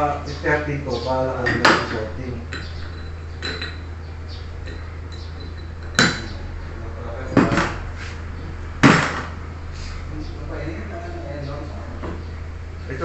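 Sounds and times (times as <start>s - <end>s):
steady low hum: 0.0s - 13.0s
metal parts clanking: 1.4s - 3.9s.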